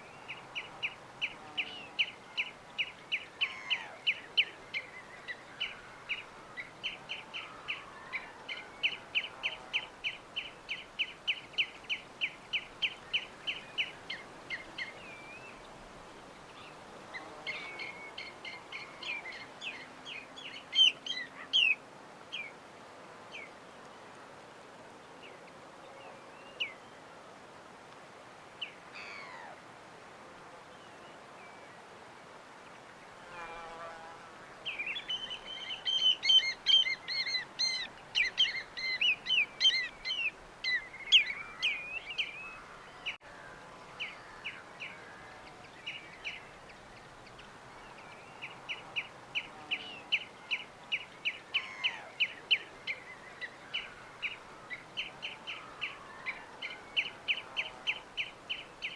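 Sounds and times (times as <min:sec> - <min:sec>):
small birds chirping and singing: 0:00.0 - 0:15.8, 0:16.4 - 0:22.6, 0:34.6 - 0:43.2, 0:43.8 - 0:58.9
steady background hiss: 0:00.0 - 0:58.9.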